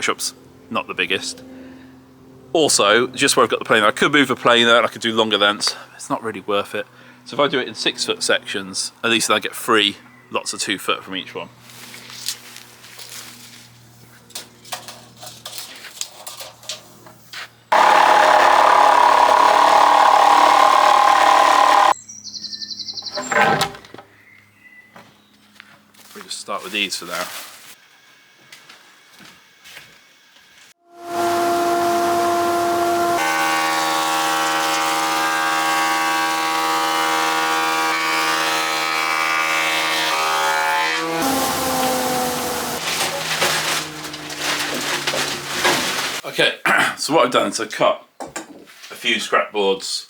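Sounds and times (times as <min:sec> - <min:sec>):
woodworking power tool cutting: 0:17.7 - 0:22.0, 0:30.9 - 0:46.2.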